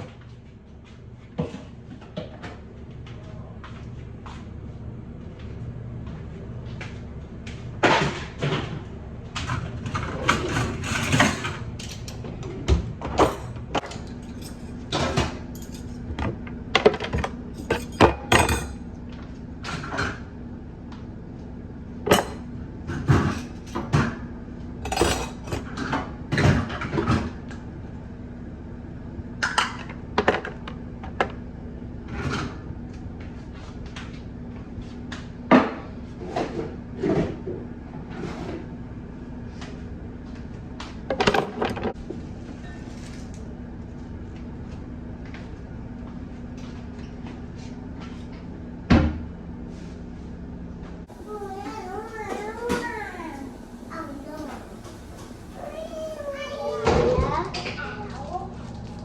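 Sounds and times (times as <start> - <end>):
steady low hum: 0.0 - 26.1, 38.7 - 59.0
dishes and utensils clinking: 10.2 - 12.3, 13.0 - 16.3, 16.9 - 18.8, 22.1 - 24.1, 24.8 - 25.8.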